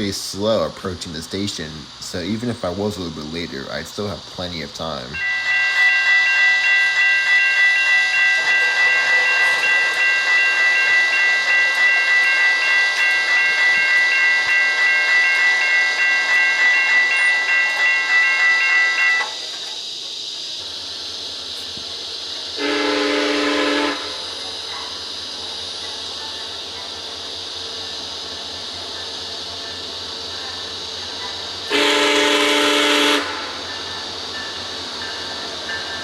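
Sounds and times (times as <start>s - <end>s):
railroad crossing bell ringing: 4.8s - 20.1s, 21.5s - 36.0s
train horn blast: 5.2s - 7.4s, 22.6s - 24.3s, 31.7s - 33.6s.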